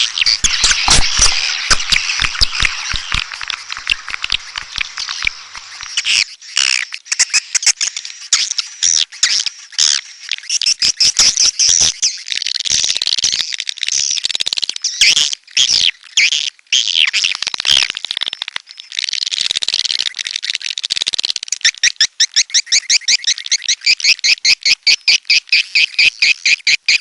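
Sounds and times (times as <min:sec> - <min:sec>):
swiftlets twittering: 0:00.0 - 0:06.3
fast regular chirps: 0:00.0 - 0:08.8.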